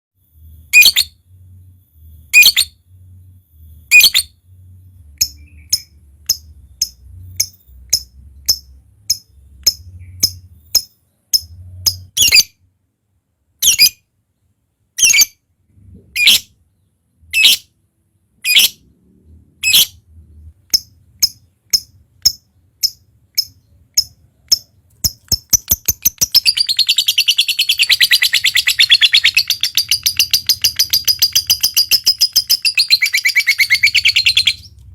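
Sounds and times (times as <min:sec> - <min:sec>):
lovebird shrill calls: 0:00.7 - 0:01.1, 0:02.3 - 0:02.7, 0:03.9 - 0:04.3, 0:25.3 - 0:34.7
bird fast chattering: 0:20.7 - 0:34.7.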